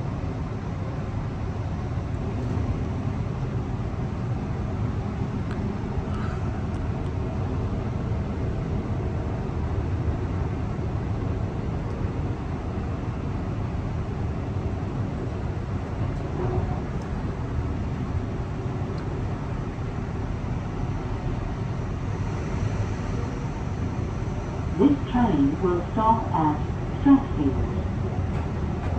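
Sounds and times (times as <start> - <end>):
train wheels rumbling: 15.4 - 28.9.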